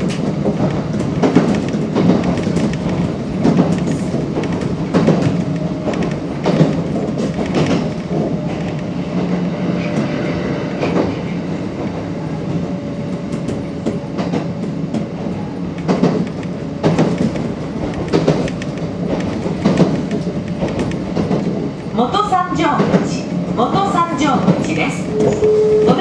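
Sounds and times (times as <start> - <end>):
wheels clacking over rail joints: 0.0 - 10.1, 13.3 - 26.0
electric train rumbling: 0.0 - 26.0.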